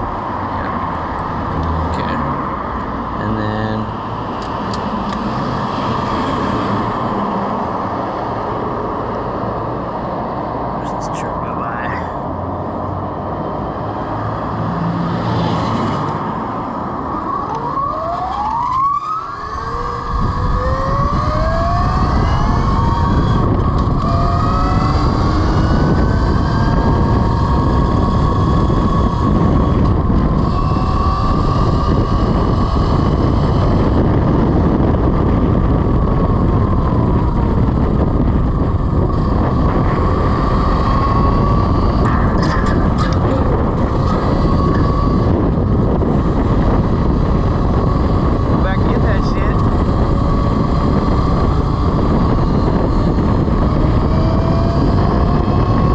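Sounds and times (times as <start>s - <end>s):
wind rush: 0.0s - 55.9s
electric motorcycle motor whine: 17.0s - 55.9s.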